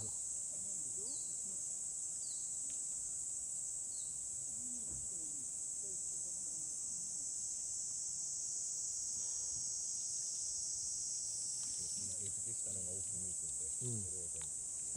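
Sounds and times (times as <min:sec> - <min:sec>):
insects chirring: 0:00.0 - 0:14.9
faint distant voices: 0:11.8 - 0:14.9.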